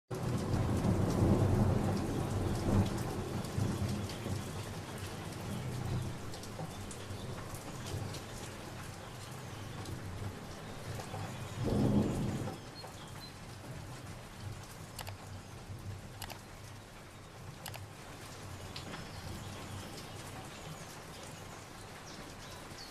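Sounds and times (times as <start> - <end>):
low rolling thunder: 0.1 - 6.3, 10.2 - 12.8
steady rain: 0.1 - 22.9.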